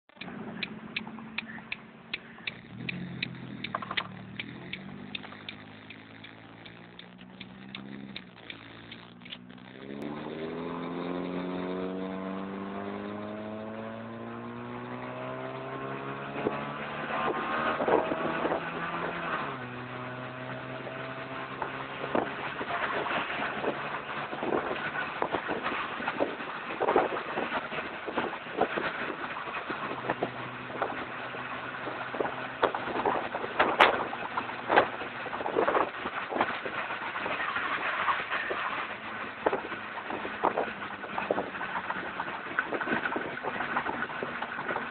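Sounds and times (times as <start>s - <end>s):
regular clicking: 0.1s - 11.0s
car engine accelerating: 0.1s - 44.9s
knocks or rattles: 2.4s - 11.3s.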